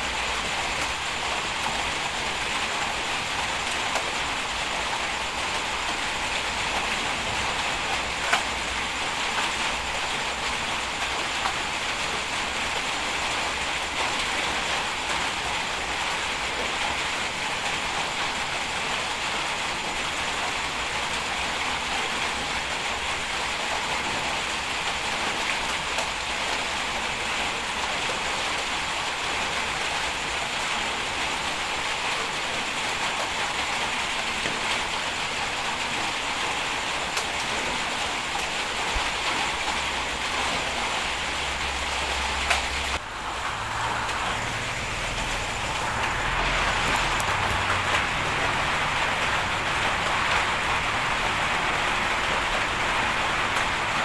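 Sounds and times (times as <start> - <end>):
bulldozer engine and tracks: 41.1 - 54.0.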